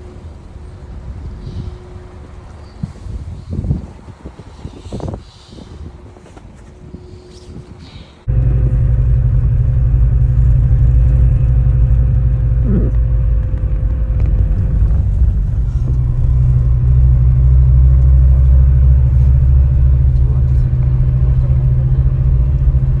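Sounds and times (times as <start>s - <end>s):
bus engine droning: 8.2s - 23.0s.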